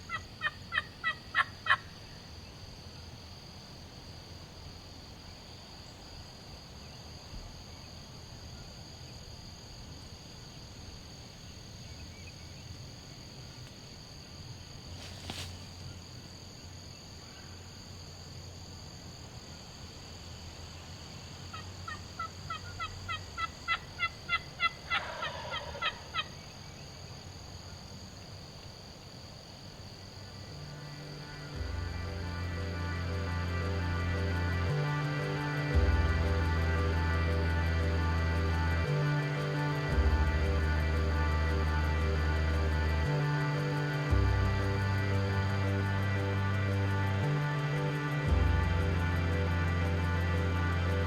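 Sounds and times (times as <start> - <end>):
wild turkey yelping: 0.0 - 1.9, 21.5 - 26.5
low falling turkey call: 0.0 - 2.2, 21.5 - 26.5.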